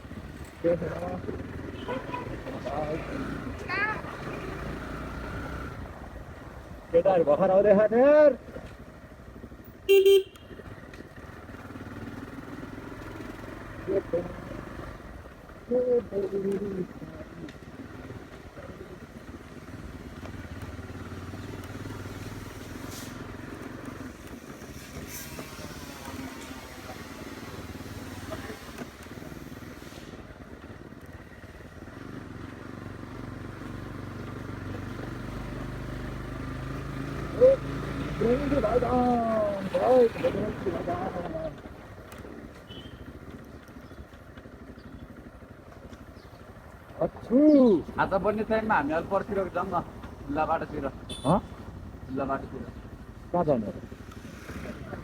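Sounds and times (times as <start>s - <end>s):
motorcycle engine humming: 0.0s - 55.0s
vehicle horn beep: 9.9s - 10.6s, 42.6s - 43.2s, 51.0s - 51.7s.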